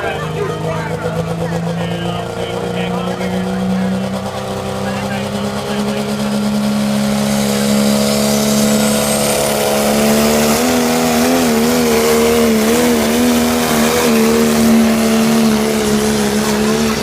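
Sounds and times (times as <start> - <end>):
engine running at high revs: 0.0 - 17.0.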